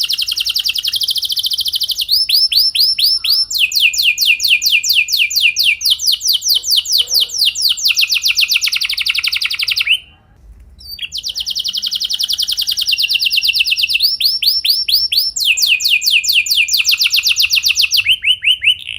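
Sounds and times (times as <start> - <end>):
canary singing rolls: 0.0 - 10.1.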